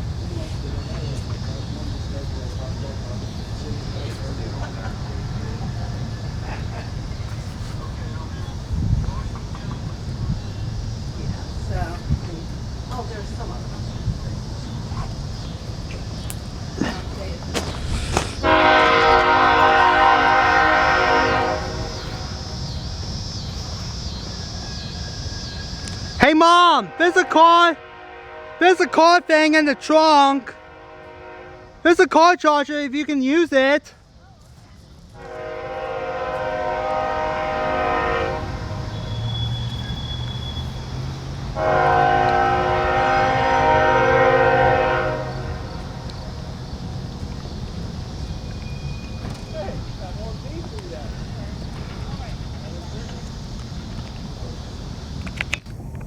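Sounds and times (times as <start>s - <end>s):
train rumbling past: 0.0s - 56.0s
locomotive horn: 17.9s - 22.8s, 24.6s - 32.4s, 35.2s - 46.7s.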